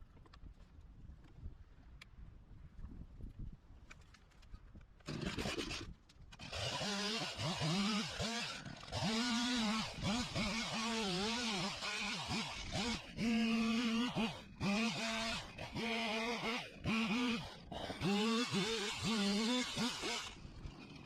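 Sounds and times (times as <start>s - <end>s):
chainsaw revving: 5.1s - 21.0s.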